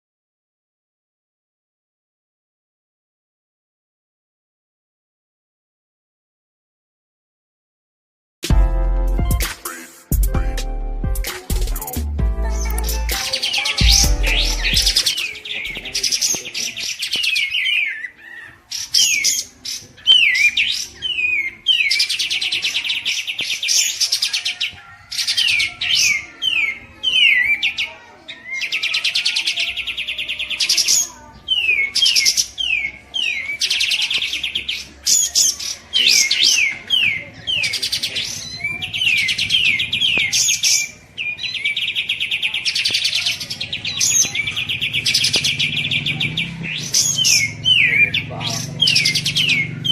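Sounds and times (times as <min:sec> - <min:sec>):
songbird trilling and whistling: 0:12.5 - 0:49.9.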